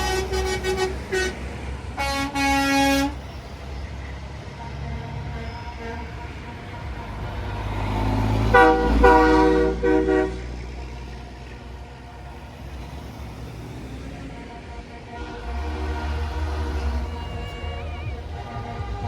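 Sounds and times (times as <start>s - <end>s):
truck air horn blasts: 0.0s - 3.3s, 4.4s - 11.0s, 14.1s - 19.0s
truck engines rumbling: 0.0s - 19.0s.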